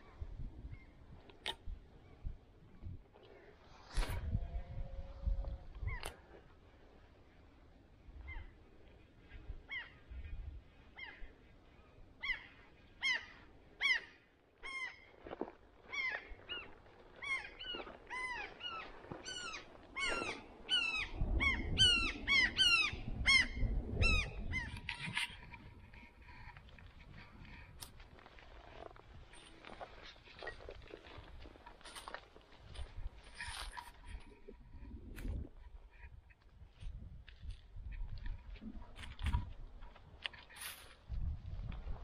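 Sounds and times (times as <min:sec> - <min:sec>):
bird calling: 0:10.9 - 0:26.5.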